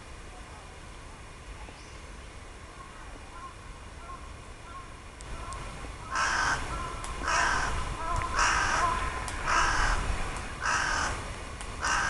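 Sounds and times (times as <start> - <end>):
bird harsh calls: 6.1 - 10.0.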